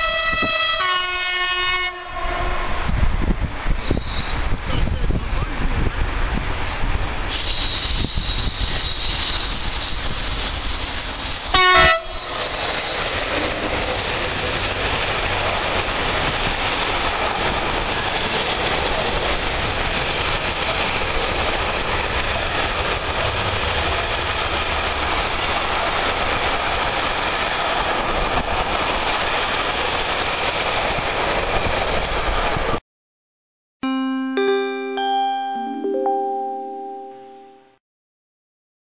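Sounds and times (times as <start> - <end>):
train horn blast: 0.0 - 2.9, 11.5 - 12.3
train wheels on rails: 2.7 - 32.8.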